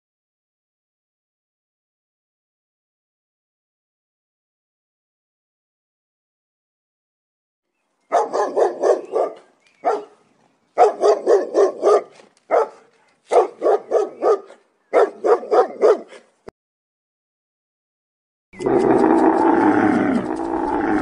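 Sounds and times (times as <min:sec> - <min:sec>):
dog barking: 0:08.1 - 0:10.2, 0:10.8 - 0:16.4.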